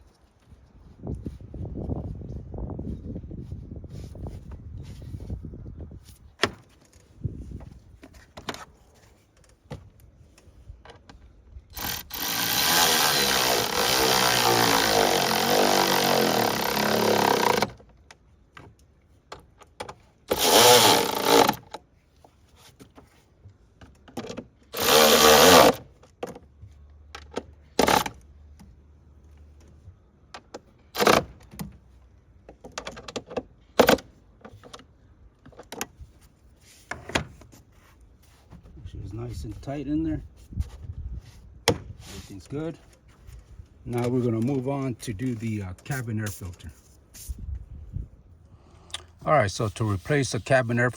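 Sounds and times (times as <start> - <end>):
handheld power tool running: 11.8 - 17.7, 20.3 - 21.6, 24.8 - 25.8.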